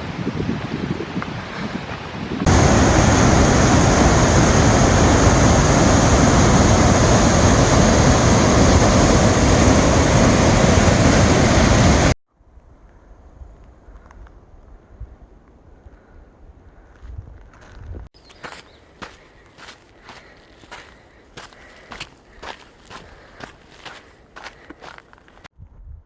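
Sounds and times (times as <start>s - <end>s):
waterfall rushing: 2.5s - 12.2s.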